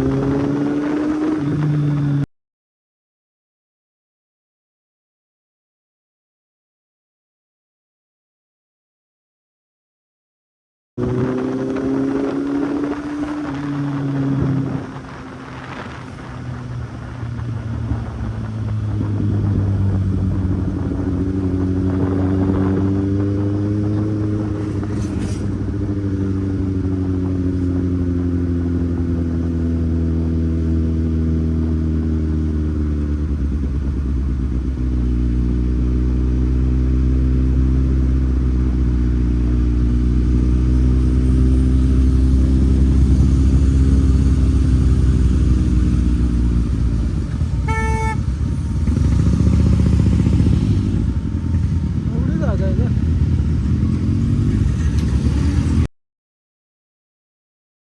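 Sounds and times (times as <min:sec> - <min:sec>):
motorcycle engine running: 0:11.0 - 0:55.9.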